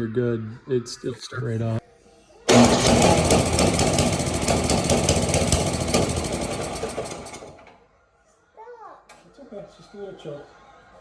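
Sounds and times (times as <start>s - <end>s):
snowblower engine running: 2.5s - 7.7s.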